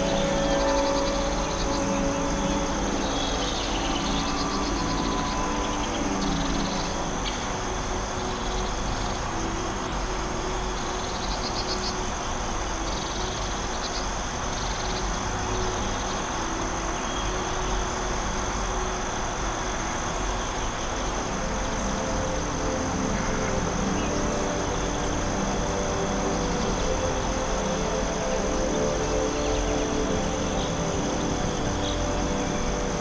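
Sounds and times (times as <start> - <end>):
steady rushing background: 0.0 - 11.3
insect pulsed trills: 0.0 - 33.0
insects chirring drone: 0.0 - 33.0.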